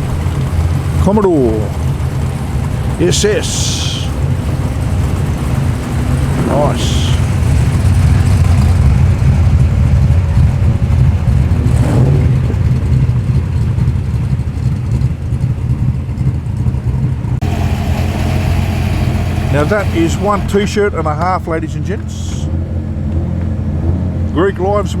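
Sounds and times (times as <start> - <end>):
car engine rumbling past: 1.6 - 14.4, 17.4 - 24.4.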